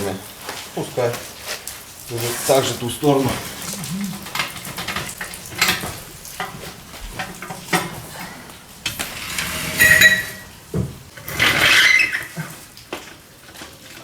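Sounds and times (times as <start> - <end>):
metal clinking and scraping: 8.8 - 10.6.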